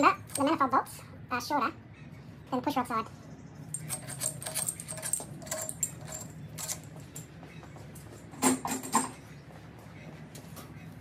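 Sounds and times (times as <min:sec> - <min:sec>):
steel bolts clinking: 0:03.7 - 0:07.3.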